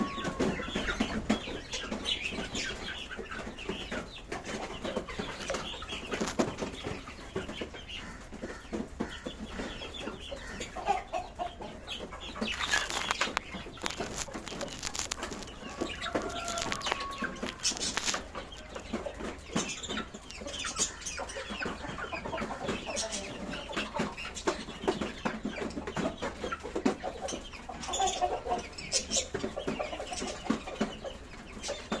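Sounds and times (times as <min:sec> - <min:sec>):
birds chattering and chirping: 0:00.0 - 0:32.0
wings flapping: 0:12.4 - 0:18.3.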